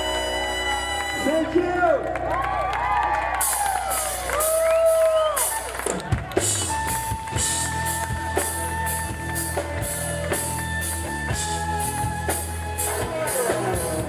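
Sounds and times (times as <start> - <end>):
long held high note: 0.0 - 1.8
drums and bass beat: 3.4 - 14.0.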